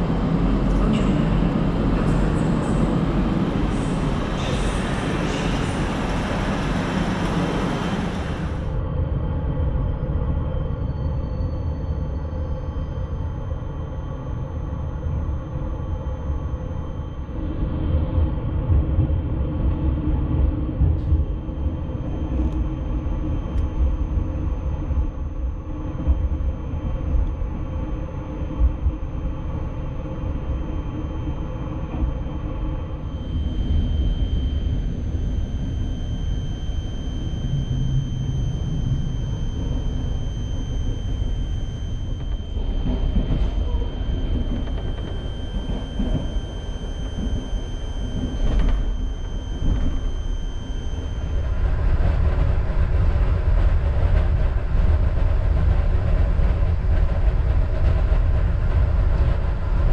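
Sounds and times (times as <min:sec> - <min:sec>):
train wheels rumbling on track: 0:00.0 - 0:08.6
faint high whine: 0:00.0 - 0:59.9.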